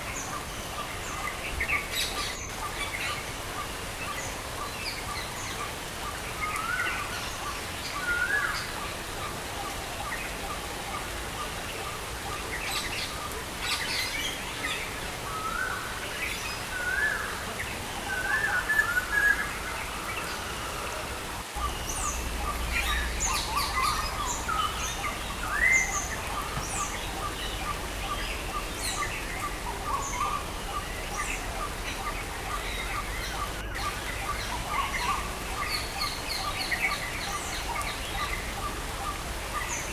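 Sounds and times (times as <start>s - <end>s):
rain hissing: 17.4s - 39.9s
birds chirping and calling: 21.5s - 39.9s.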